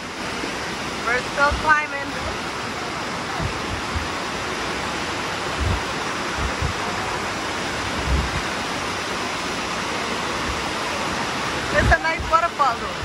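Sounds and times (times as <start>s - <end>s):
waterfall rushing: 0.0s - 13.0s
low thumps: 3.4s - 4.3s, 5.4s - 7.0s, 7.8s - 8.5s.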